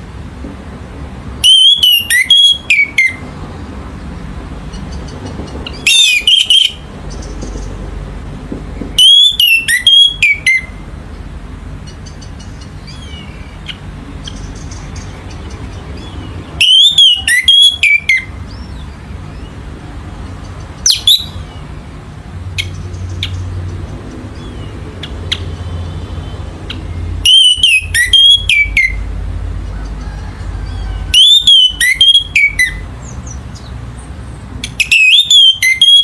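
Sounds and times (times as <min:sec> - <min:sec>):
thrush whistled song: 0:01.4 - 0:03.3, 0:05.7 - 0:07.7, 0:08.8 - 0:10.8, 0:16.0 - 0:19.6, 0:20.8 - 0:21.6, 0:26.2 - 0:29.1, 0:30.0 - 0:33.7, 0:34.6 - 0:36.0.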